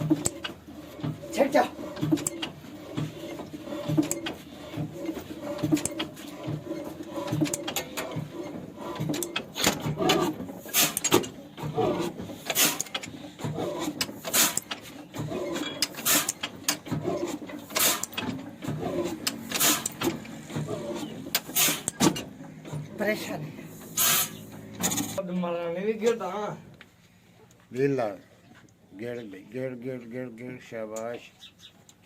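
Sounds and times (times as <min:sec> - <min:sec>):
sharp mechanical clacks: 0:00.0 - 0:23.1, 0:23.8 - 0:25.2
knocking and rattling: 0:00.0 - 0:23.3.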